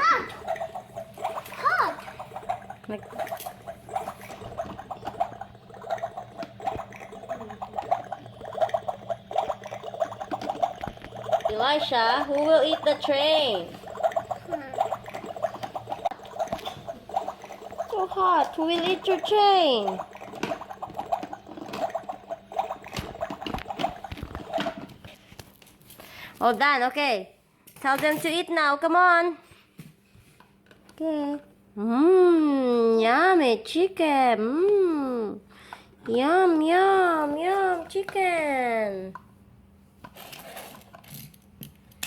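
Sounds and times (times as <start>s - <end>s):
toy bubbling boiling sound: 0.0s - 25.2s.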